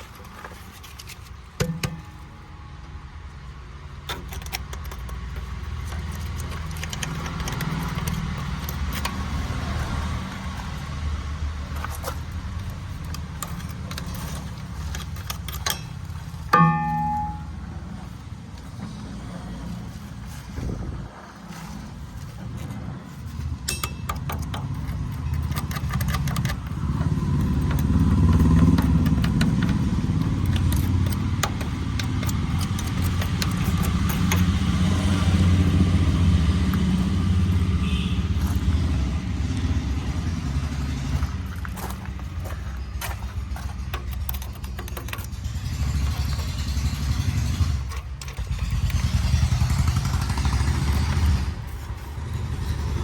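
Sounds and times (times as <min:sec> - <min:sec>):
tractor engine running: 0:00.0 - 0:53.0
metallic clicking: 0:04.0 - 0:17.8, 0:23.6 - 0:35.8.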